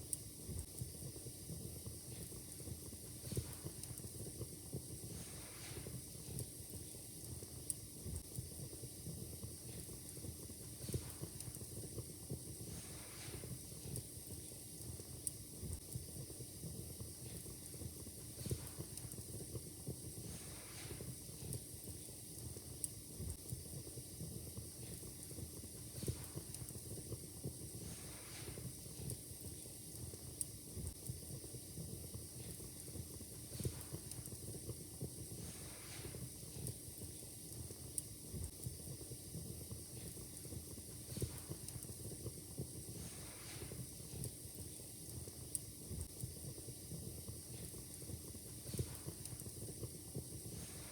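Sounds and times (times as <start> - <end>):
soft hiss of fire: 0.0 - 50.9
wood fire crackling: 0.0 - 50.9
sharp pops from fire: 9.6 - 16.0, 17.2 - 23.6, 24.8 - 31.2, 32.3 - 39.0, 39.8 - 46.4, 47.0 - 50.9.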